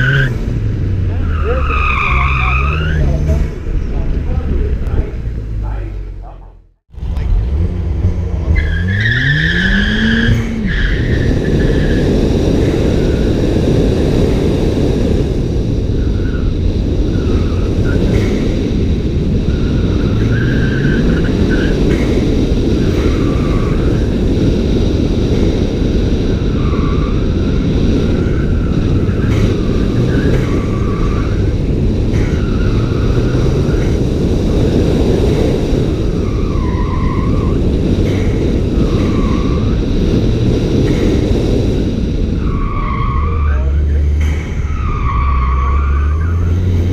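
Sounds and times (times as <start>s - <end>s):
car engine accelerating hard: 0.0s - 46.9s
road noise: 0.0s - 46.9s
tyres squealing: 1.0s - 4.4s.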